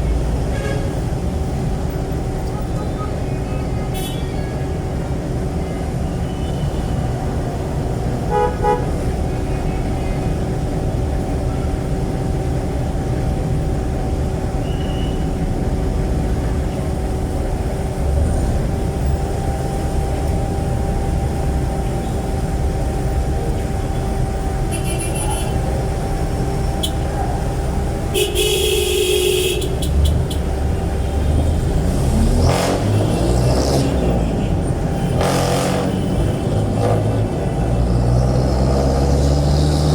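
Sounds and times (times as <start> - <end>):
diesel engine exhaust rumble: 0.0 - 39.9
vehicle horns tooting: 3.8 - 4.6, 8.3 - 9.1, 24.6 - 25.8, 26.7 - 27.2, 28.0 - 37.6.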